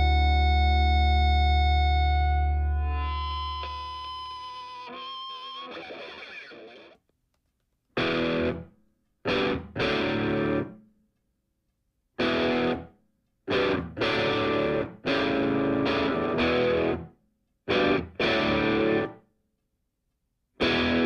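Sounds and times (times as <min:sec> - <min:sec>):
distorted electric guitar chords: 0:00.0 - 0:07.0, 0:08.0 - 0:08.7, 0:09.3 - 0:10.8, 0:12.2 - 0:12.9, 0:13.5 - 0:17.1, 0:17.7 - 0:19.2, 0:20.6 - 0:21.0.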